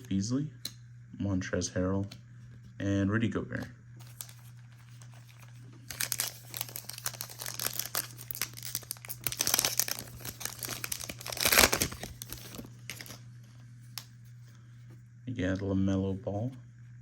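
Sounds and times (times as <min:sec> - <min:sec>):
plastic wrapper crinkling and tearing: 0:04.0 - 0:13.2.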